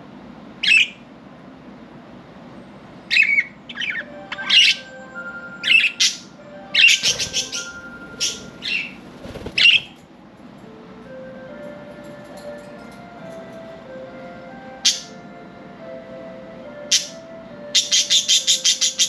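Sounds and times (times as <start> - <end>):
budgerigars chirping and squawking: 0.6 - 1.0, 3.1 - 5.0, 5.6 - 10.0, 14.9 - 15.1, 16.9 - 19.0
soft music with held notes: 3.7 - 19.0.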